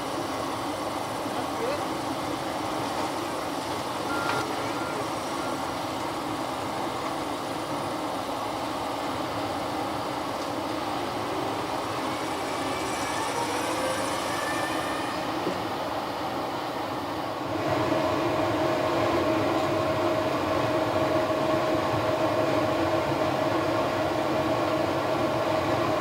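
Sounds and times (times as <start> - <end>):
vehicle rumble and hiss: 0.0 - 14.3
faint squeals: 11.4 - 15.9.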